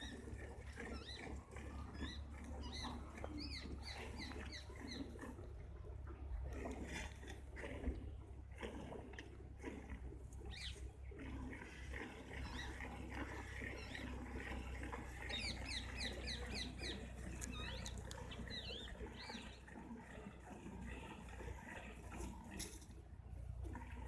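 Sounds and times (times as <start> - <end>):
small birds chirping: 2.0 - 5.2, 10.4 - 10.8, 15.2 - 19.7.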